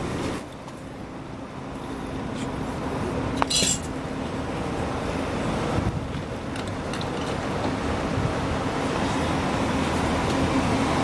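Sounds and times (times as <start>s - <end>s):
diesel engine rumbling: 0.0s - 11.0s
high-pitched metallic clink: 3.4s - 3.9s.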